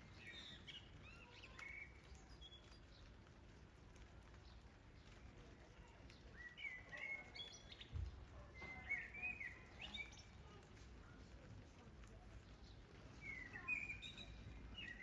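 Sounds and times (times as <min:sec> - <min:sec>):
bird chirping: 0:13.2 - 0:15.0.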